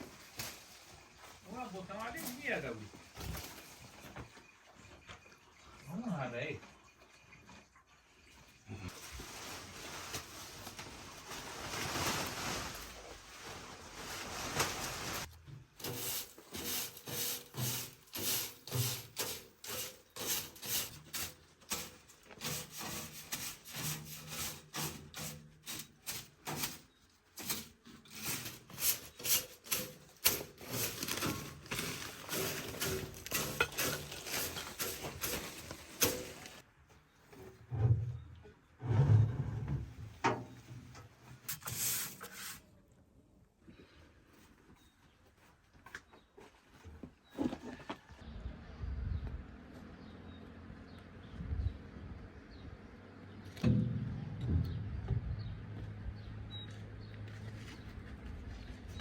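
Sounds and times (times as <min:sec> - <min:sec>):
repeated scraping strokes: 0:11.6 - 0:36.6, 0:41.4 - 0:42.7.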